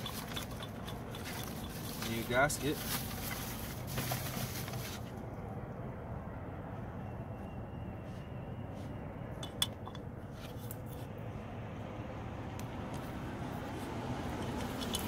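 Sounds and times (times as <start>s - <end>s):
metal parts clinking: 0.0s - 2.5s, 14.5s - 15.0s.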